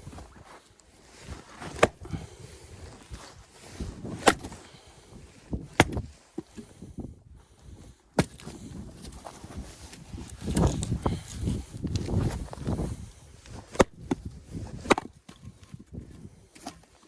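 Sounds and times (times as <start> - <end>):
axe striking firewood: 1.6 - 2.3, 4.0 - 4.7, 5.6 - 6.7, 8.2 - 8.7, 13.6 - 15.8
handling and shuffling noise: 2.6 - 6.8, 8.3 - 17.0.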